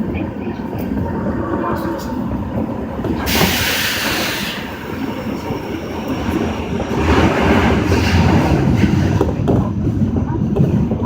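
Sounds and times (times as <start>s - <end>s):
subway train rumbling in tunnel: 0.0s - 11.0s
loud hiss: 3.3s - 4.7s.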